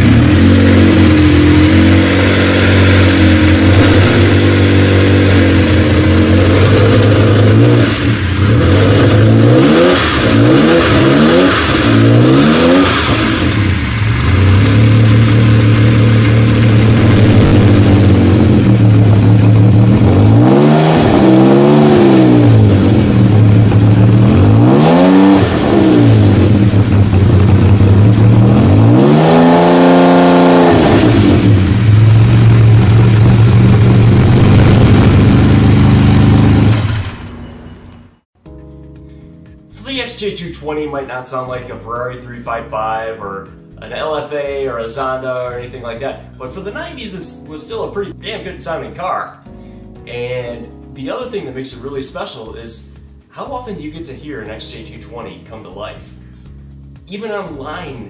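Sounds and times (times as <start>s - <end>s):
car engine idling and revving: 0.0s - 38.4s, 56.2s - 57.1s.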